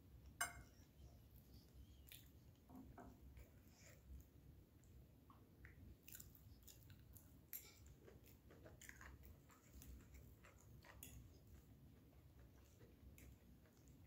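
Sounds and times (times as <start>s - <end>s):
person chewing: 1.8s - 2.7s, 5.6s - 14.0s.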